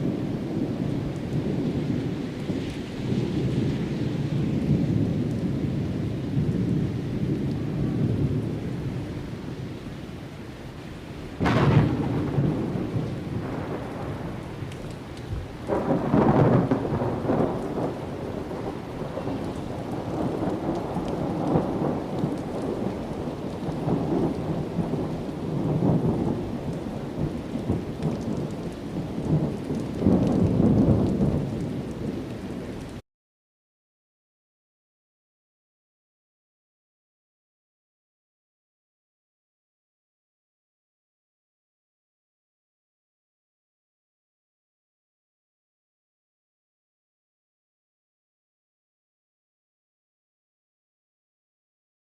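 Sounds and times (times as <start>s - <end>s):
rumbling thunder rolls: 0.0s - 9.8s, 11.3s - 33.0s
steady rain: 0.0s - 33.0s
thunder crack: 11.4s - 28.6s, 29.2s - 32.2s.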